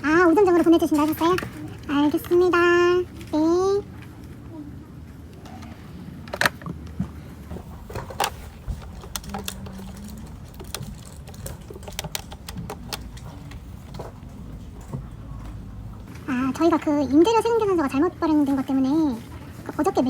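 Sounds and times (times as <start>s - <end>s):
keyboard typing: 7.8s - 15.8s.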